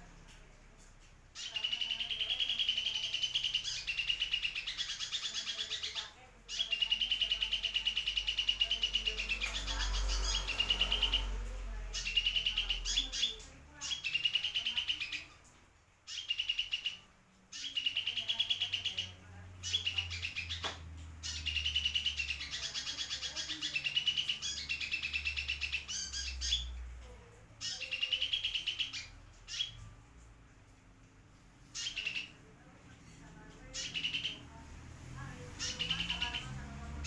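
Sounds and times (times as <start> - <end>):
sunbird trilling: 35.5 - 36.6.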